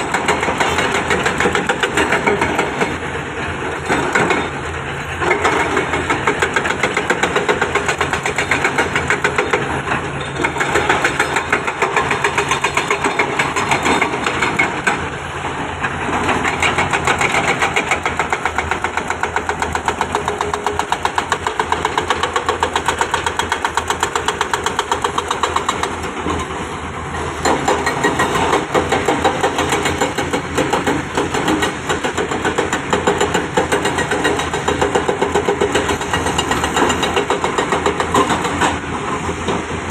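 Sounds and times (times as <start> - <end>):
diesel engine knocking: 16.4 - 26.0, 27.4 - 38.8.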